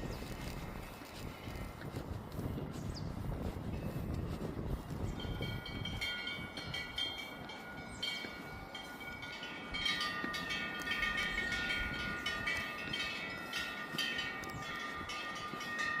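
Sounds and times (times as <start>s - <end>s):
wind bells jangling: 3.6s - 16.0s.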